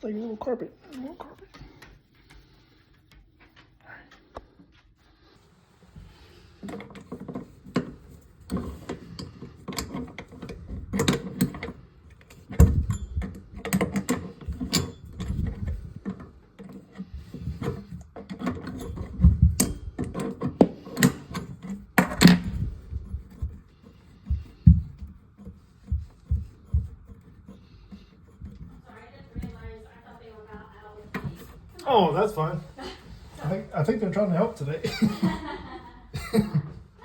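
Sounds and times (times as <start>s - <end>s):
objects knocking and rattling: 6.0s - 31.8s, 34.8s - 37.0s.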